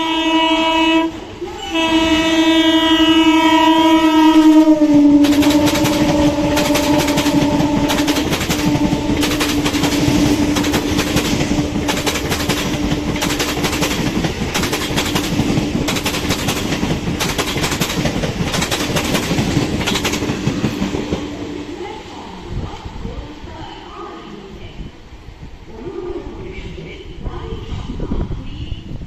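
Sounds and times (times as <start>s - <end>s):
train horn: 0.0s - 17.0s
train hum: 0.0s - 29.0s.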